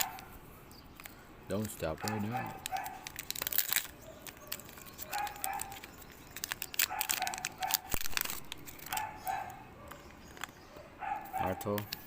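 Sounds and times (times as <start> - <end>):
cards rustling and clicking: 0.0 - 12.0
foil pack crinkling and tearing: 1.0 - 9.2, 9.9 - 10.6.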